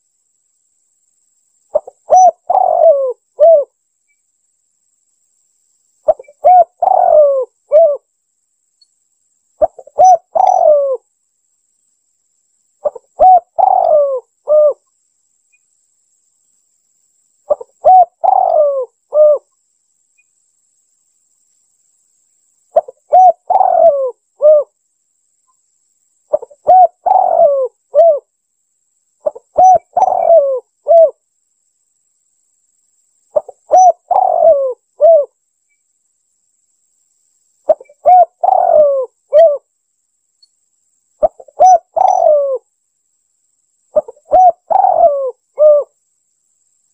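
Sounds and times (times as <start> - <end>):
dove cooing: 1.7 - 3.8, 6.1 - 8.1, 9.6 - 11.0, 12.8 - 14.8, 17.5 - 19.5, 22.8 - 24.7, 26.3 - 28.3, 29.2 - 31.2, 33.4 - 35.3, 37.7 - 39.7, 41.2 - 42.6, 43.9 - 46.0.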